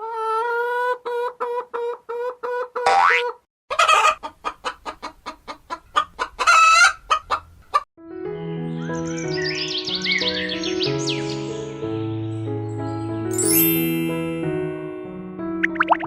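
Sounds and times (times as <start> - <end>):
hen clucking: 0.0 - 7.8
background music: 8.0 - 16.0.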